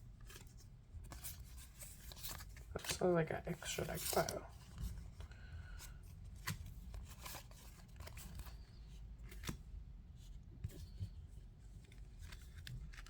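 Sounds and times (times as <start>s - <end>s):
cards clicking and rustling: 1.1s - 4.4s, 11.8s - 13.0s.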